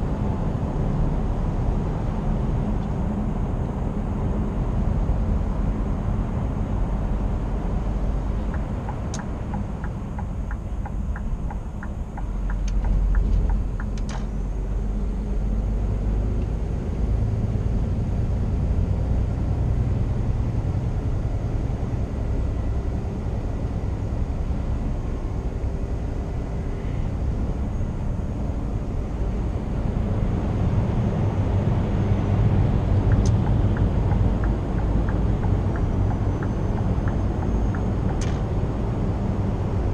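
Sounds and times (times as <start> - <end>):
truck diesel engine rumble: 0.0 - 39.9
tyres on road: 0.0 - 39.9
light ticks: 8.5 - 14.2, 33.1 - 38.4.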